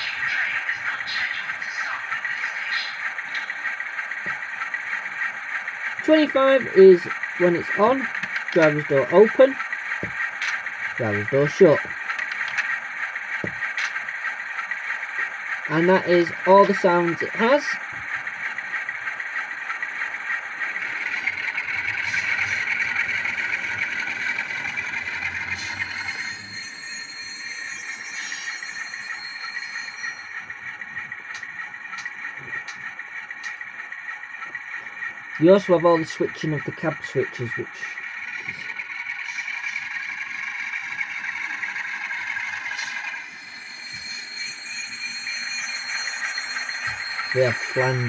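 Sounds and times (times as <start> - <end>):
model diesel engine idling: 0.0 - 26.4, 30.1 - 43.0
thin high squealing tones: 21.0 - 48.0.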